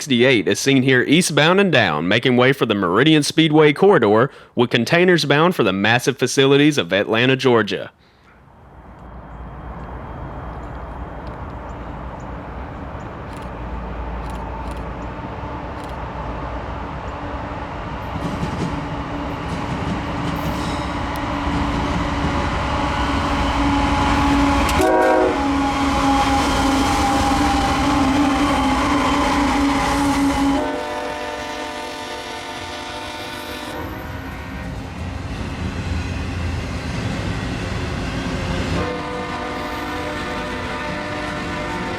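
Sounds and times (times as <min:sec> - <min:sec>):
freight train rumble: 0:08.2 - 0:41.9
locomotive horn: 0:22.8 - 0:35.0, 0:38.5 - 0:41.9.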